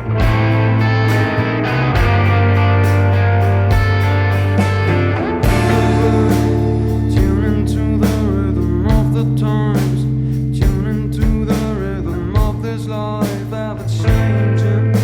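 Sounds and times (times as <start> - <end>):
live band playing: 0.0 - 15.0
drum hits: 0.2 - 1.2, 3.7 - 9.2, 10.6 - 12.6
person singing: 5.2 - 15.0.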